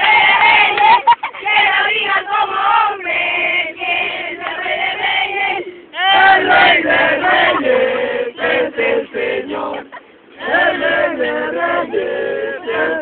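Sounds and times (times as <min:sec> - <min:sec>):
crowd chanting call and response: 0:05.4 - 0:13.0.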